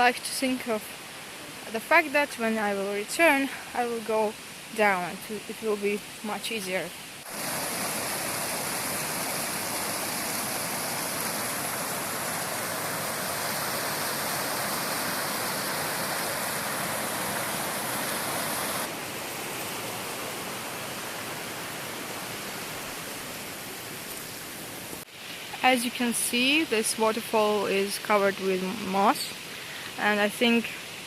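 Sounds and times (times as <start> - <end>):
waterfall rushing: 6.5 - 25.3.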